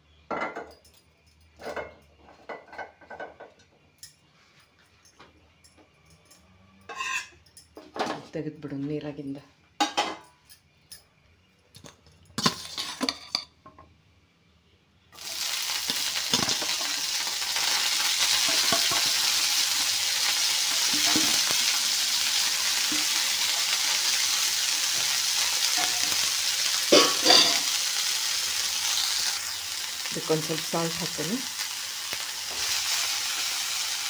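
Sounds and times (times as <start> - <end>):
vegetables sizzling in frying pan: 15.2 - 34.0.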